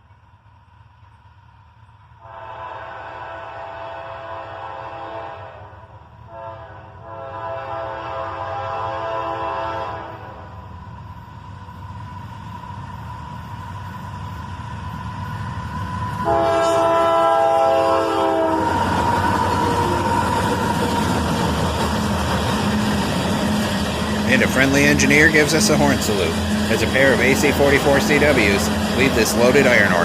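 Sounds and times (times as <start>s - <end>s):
locomotive engine and wheel noise: 0.0s - 2.2s, 10.1s - 30.0s
locomotive horn blasts: 2.2s - 5.7s, 6.3s - 10.5s, 16.2s - 18.8s
locomotive rumble: 5.8s - 30.0s.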